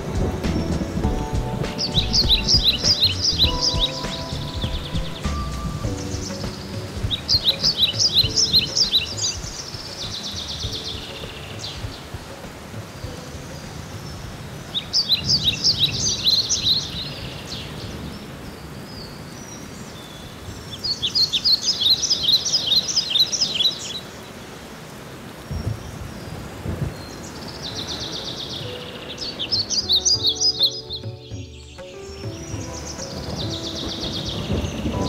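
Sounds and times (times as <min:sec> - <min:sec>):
bird singing high chirps: 0:00.6 - 0:12.1.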